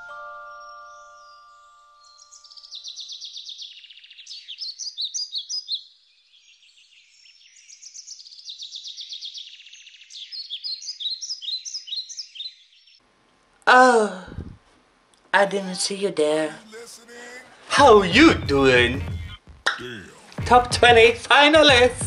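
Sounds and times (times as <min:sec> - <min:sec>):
songbird singing: 0:00.5 - 0:13.0
held musical tones: 0:15.4 - 0:22.0.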